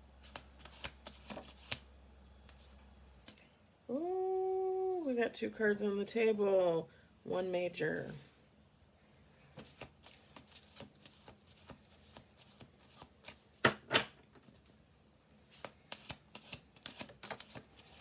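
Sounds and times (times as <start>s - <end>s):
cards being shuffled: 0.2s - 1.8s, 9.6s - 13.4s, 15.5s - 18.0s.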